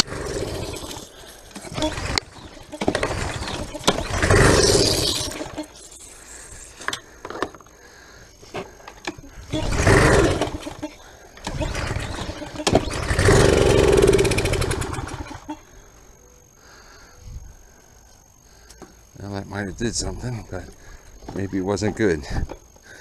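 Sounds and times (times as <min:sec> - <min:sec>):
small engine catching and dying: 0:00.0 - 0:05.8, 0:11.4 - 0:15.5.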